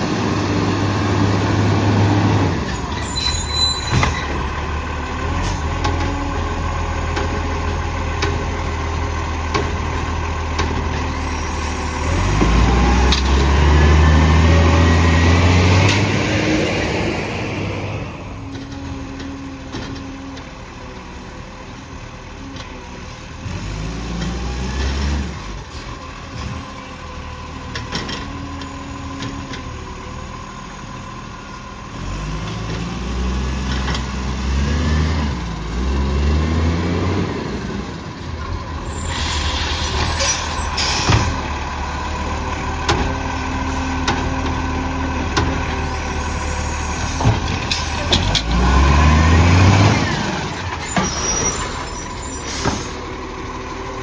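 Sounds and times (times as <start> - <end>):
garbage truck engine revving: 0.0 - 22.4, 31.8 - 54.0
air brake hiss: 38.4 - 41.4.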